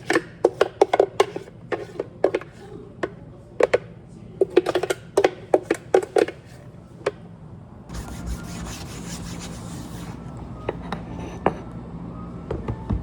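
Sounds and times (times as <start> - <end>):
objects rubbing: 7.9 - 11.7.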